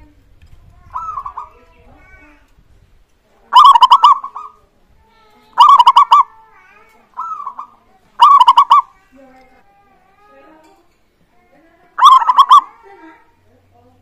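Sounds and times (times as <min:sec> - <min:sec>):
dove cooing: 0:00.9 - 0:01.6, 0:03.5 - 0:04.7, 0:05.6 - 0:06.3, 0:07.2 - 0:09.0, 0:12.0 - 0:12.9.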